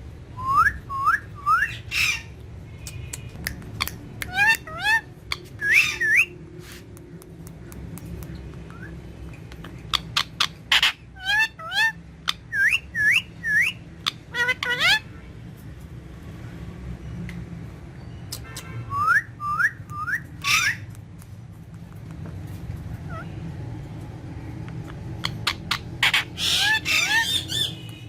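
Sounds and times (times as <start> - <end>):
parakeet whistled calls: 0.4 - 2.4, 3.8 - 6.4, 8.7 - 9.0, 9.9 - 15.1, 18.0 - 20.9, 25.2 - 28.0.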